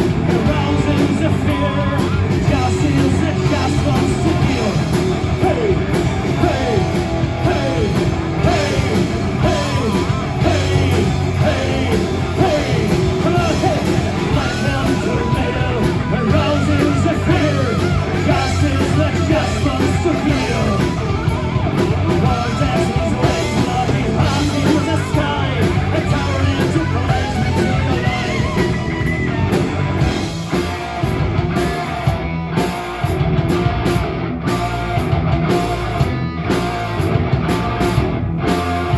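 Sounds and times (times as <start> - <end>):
rock band playing: 0.0 - 38.9
person singing: 0.3 - 28.9.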